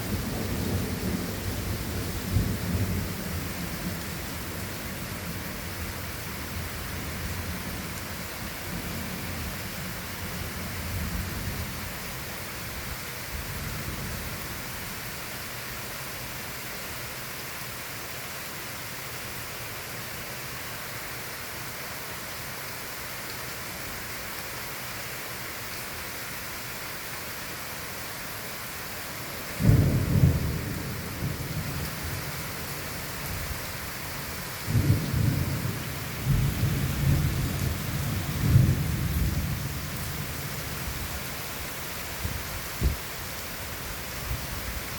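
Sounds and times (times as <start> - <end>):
rain hiss: 0.0 - 44.9
thunder rumbling: 29.6 - 33.8, 34.6 - 41.0.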